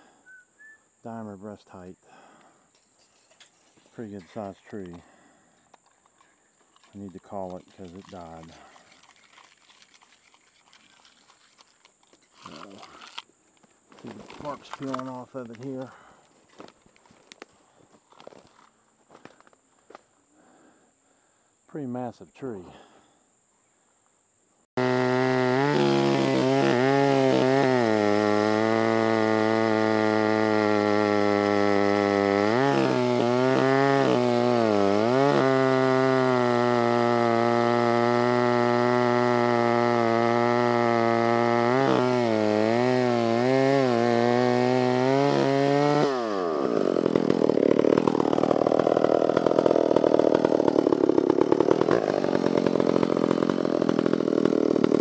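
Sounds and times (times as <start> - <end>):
chainsaw cutting wood: 2.4 - 17.5, 18.1 - 19.5, 24.8 - 55.0
chainsaw running at high revs: 6.8 - 11.6, 12.4 - 13.2, 24.8 - 55.0.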